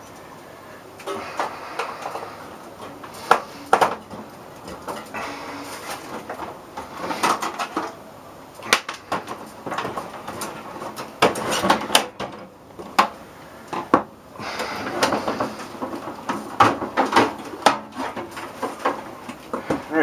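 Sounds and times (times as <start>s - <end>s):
tools and parts scraping: 1.0s - 8.0s.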